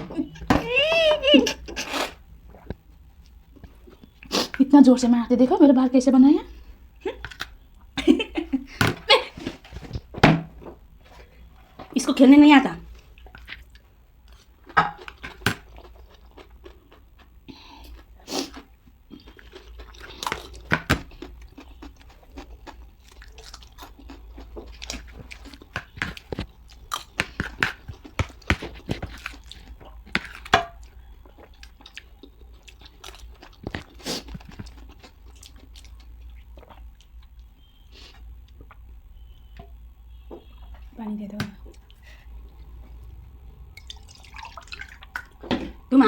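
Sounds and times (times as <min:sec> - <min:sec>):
chewing crunchy snack: 0:13.0 - 0:39.4.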